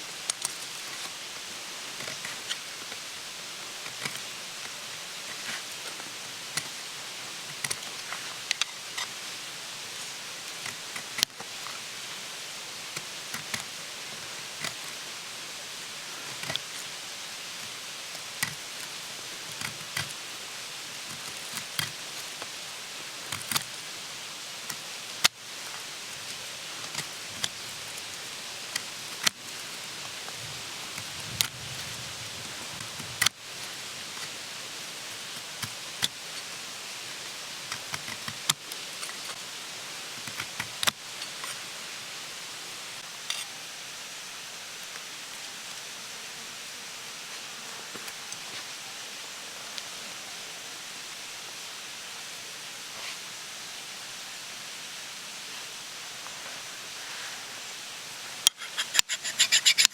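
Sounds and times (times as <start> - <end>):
campfire crackling: 0.0 - 43.5.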